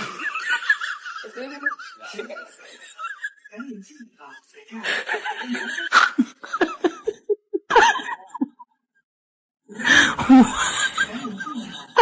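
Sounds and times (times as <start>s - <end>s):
person laughing: 0.0s - 3.6s, 4.8s - 8.6s, 9.9s - 12.0s
voices: 0.0s - 8.5s, 9.7s - 12.0s.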